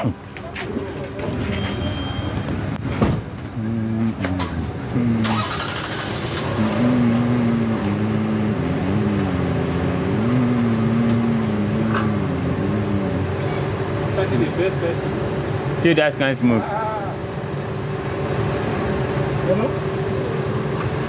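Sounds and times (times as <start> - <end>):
car engine revving: 3.4 - 15.8.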